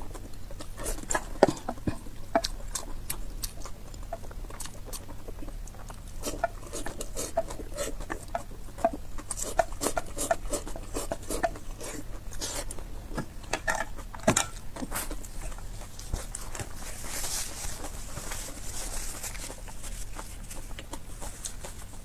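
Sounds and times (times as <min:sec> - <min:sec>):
chewing noodles: 0:00.0 - 0:22.0
napkin rustling: 0:16.2 - 0:20.6.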